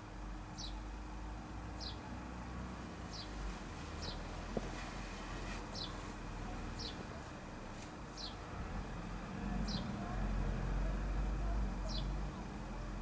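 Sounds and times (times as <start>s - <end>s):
bird chirping: 0.5s - 0.8s, 1.8s - 2.1s, 3.0s - 4.3s, 5.7s - 7.1s, 8.1s - 8.4s, 9.6s - 10.0s, 11.8s - 12.2s.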